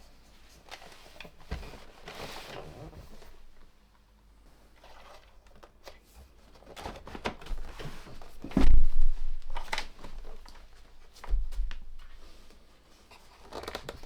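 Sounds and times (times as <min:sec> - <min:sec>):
heavy thump: 0:08.5 - 0:09.2.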